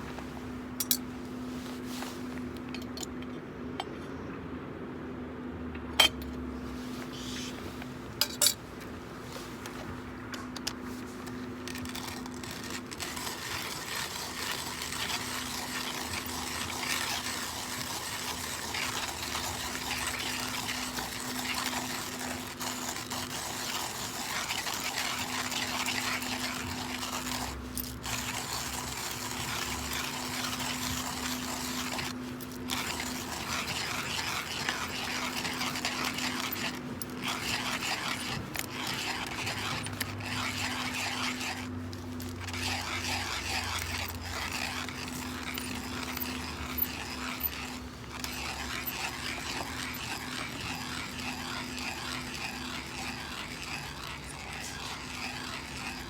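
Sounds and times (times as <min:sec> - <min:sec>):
fire crackling and bubbling: 0:11.6 - 0:41.7.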